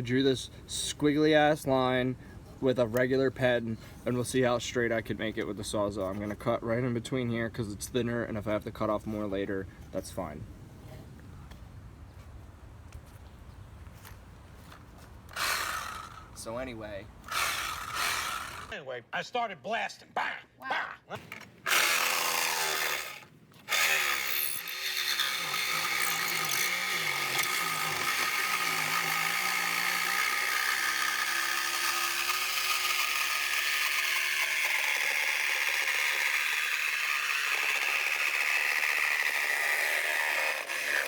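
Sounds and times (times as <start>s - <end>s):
reciprocating saw cutting metal: 15.3s - 16.5s, 17.3s - 18.8s, 21.2s - 41.0s.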